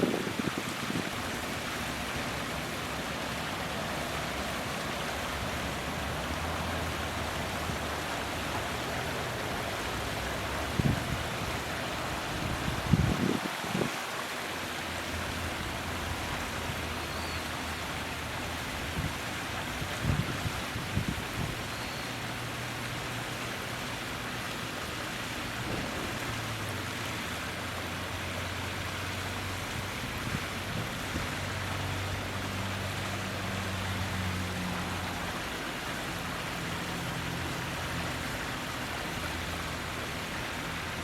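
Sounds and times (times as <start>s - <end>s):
flowing water rushing: 0.0s - 41.0s.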